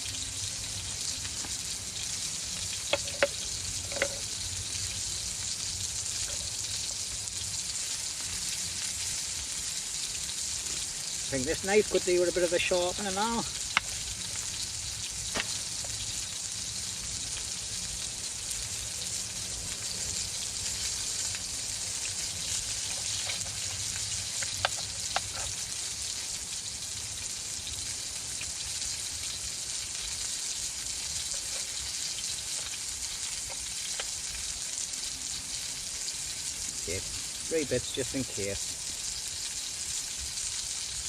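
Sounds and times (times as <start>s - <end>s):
food sizzling in a pan: 0.0s - 41.0s.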